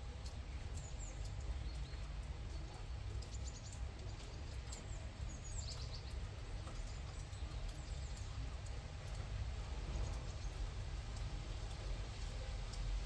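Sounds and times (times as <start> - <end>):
small birds chirping: 0.2 - 12.8.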